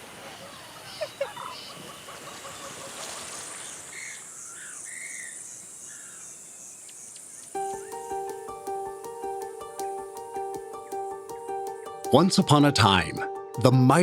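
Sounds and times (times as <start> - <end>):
insects chirring: 3.3 - 12.1
music: 7.6 - 14.0.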